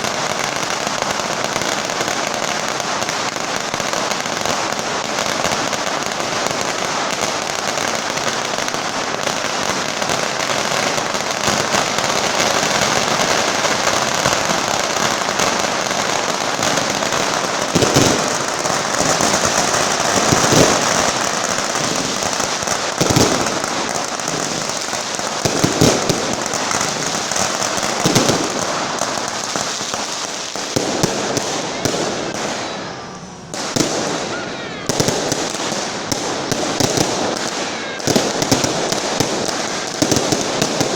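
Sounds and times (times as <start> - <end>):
firecrackers crackling rapidly: 0.0 - 40.9
loud firecracker bangs: 0.0 - 40.9.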